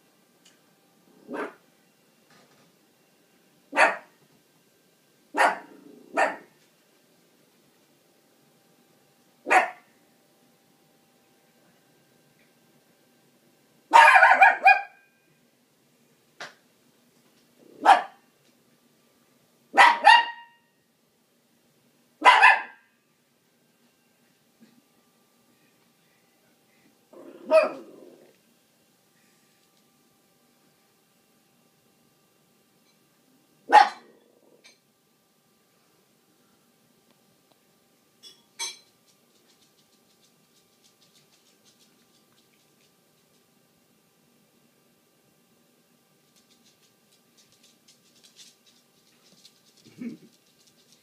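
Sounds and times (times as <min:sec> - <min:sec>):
dog barking: 0:01.3 - 0:01.6, 0:03.7 - 0:04.1, 0:05.4 - 0:06.5, 0:09.5 - 0:09.9, 0:13.9 - 0:15.0, 0:17.8 - 0:18.2, 0:19.8 - 0:20.6, 0:22.2 - 0:22.9, 0:27.4 - 0:27.9, 0:33.7 - 0:34.1.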